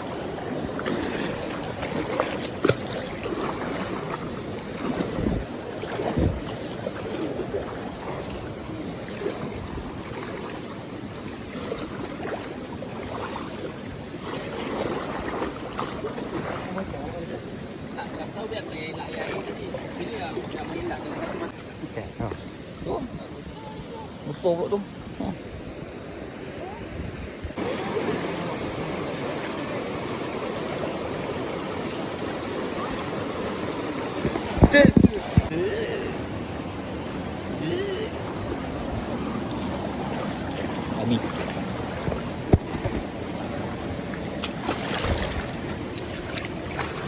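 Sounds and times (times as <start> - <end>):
waterfall and stream rushing: 0.0 - 47.0
waterfall rushing water: 27.6 - 44.3.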